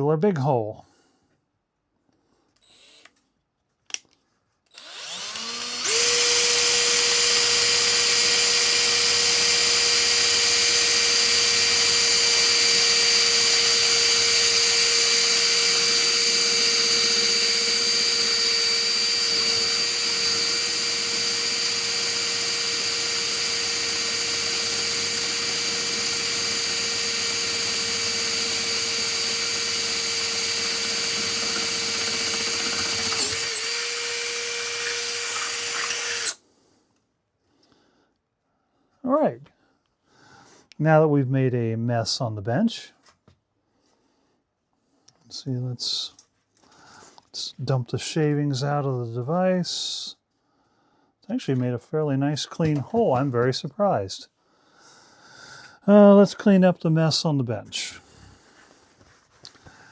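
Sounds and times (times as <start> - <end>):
electric drill whining: 4.7 - 36.4.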